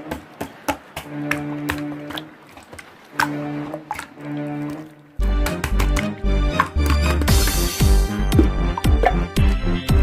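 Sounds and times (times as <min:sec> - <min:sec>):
children's song music: 0:04.6 - 0:10.0.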